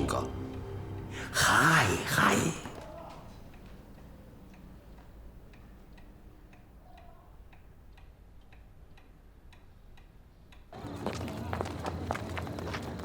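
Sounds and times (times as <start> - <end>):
clock ticking: 3.0 - 10.8.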